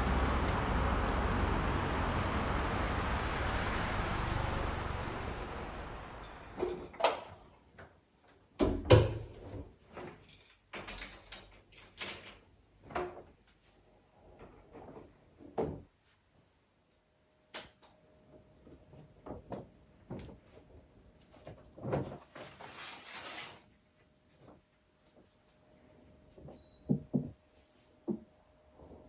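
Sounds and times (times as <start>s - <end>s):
steady rushing noise: 0.0s - 6.3s.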